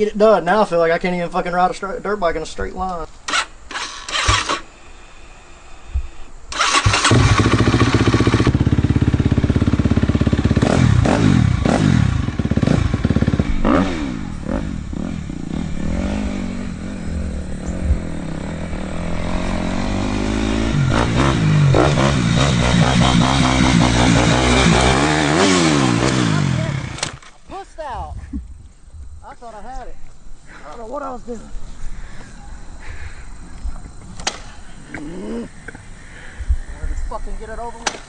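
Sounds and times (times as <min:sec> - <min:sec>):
dirt bike engine revving: 0:03.3 - 0:04.7, 0:06.5 - 0:27.3.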